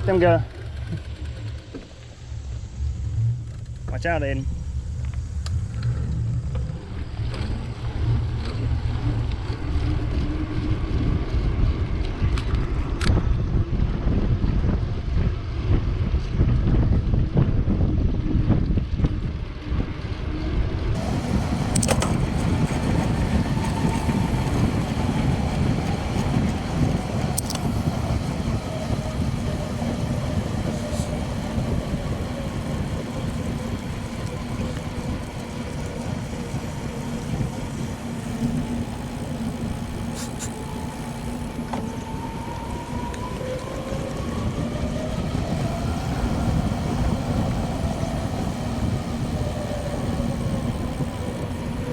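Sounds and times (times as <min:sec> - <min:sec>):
wind rushing over microphone: 0:00.0 - 0:51.9
tyres rolling on pavement: 0:21.0 - 0:51.9.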